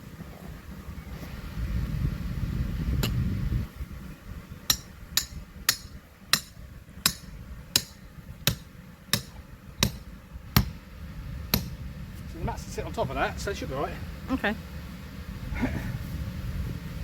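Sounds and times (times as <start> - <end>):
low rumbling noise: 0.0 - 17.0
hammer striking metal stake: 4.7 - 10.8, 11.5 - 11.8.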